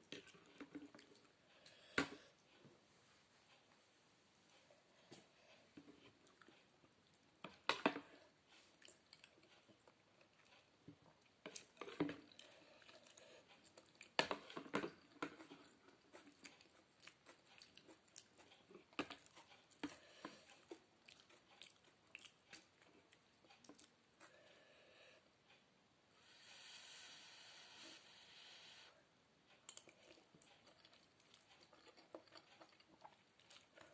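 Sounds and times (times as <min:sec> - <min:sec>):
person chewing food: 0:00.0 - 0:02.6, 0:04.5 - 0:24.6, 0:29.5 - 0:33.9.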